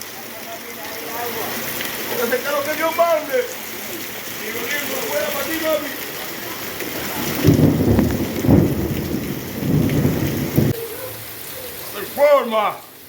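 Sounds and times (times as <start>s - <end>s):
heavy rain falling: 0.0s - 13.0s
thunder rumbling: 6.7s - 10.8s.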